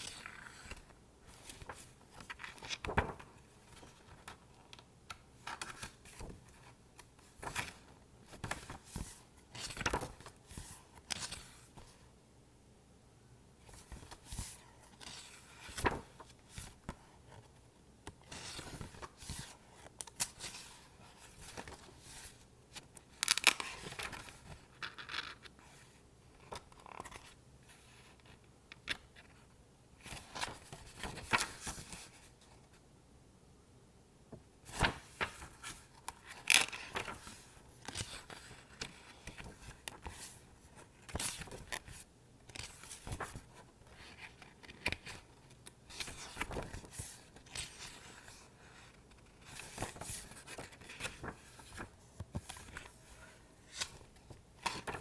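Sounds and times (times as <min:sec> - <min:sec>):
book pages flipping: 0:01.4 - 0:04.8, 0:13.8 - 0:17.0, 0:22.8 - 0:25.5, 0:34.7 - 0:40.4, 0:41.0 - 0:55.0.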